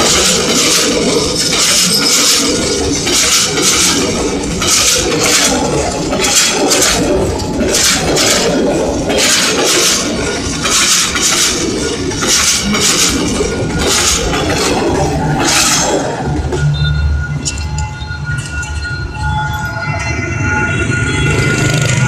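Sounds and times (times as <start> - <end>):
hissing rush of passing train: 0.0 - 17.4
train wheels clattering on rails: 0.0 - 22.0.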